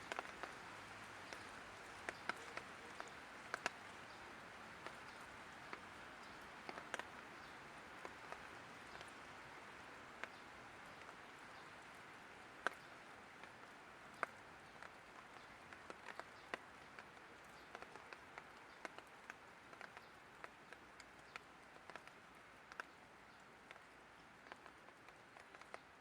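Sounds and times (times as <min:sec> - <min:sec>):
light rain hiss: 0:00.0 - 0:26.0
raindrops ticking on hard surface: 0:00.0 - 0:26.0.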